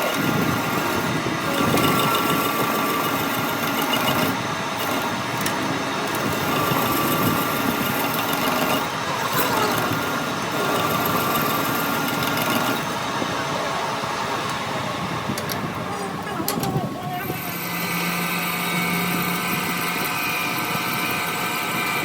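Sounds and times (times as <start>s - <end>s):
mechanical clatter: 0.0s - 13.3s, 15.2s - 18.5s
metalworking machine whine: 0.0s - 22.0s.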